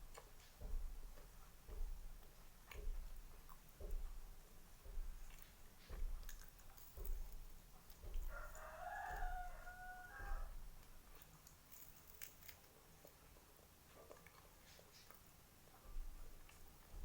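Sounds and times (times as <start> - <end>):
chewing soft fried snacks: 0.0 - 17.0
rooster crowing: 8.2 - 10.6.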